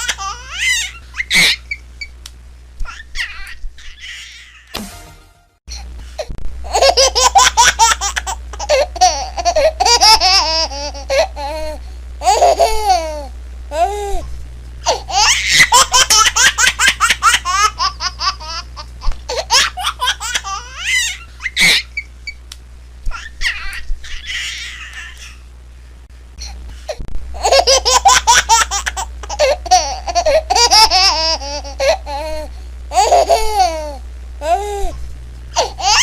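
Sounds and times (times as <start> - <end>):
baby laughing: 0.0 - 1.8, 6.7 - 13.9, 14.9 - 22.1, 23.1 - 25.4, 27.4 - 34.9, 35.6 - 36.0
low hum: 8.3 - 15.3, 29.1 - 35.9.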